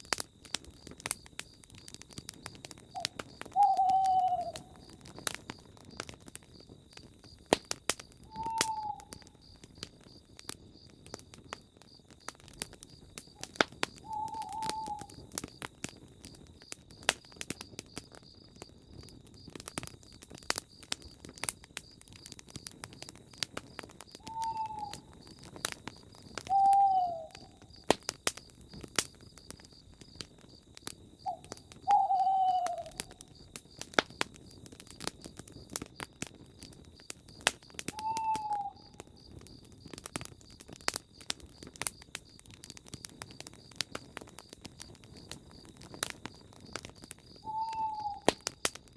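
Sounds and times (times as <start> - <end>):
campfire crackling: 0.0 - 48.9
owl hooting: 3.0 - 4.9, 8.3 - 9.3, 14.0 - 15.2, 24.2 - 25.2, 26.5 - 27.6, 31.2 - 33.2, 37.9 - 39.0, 47.4 - 48.3.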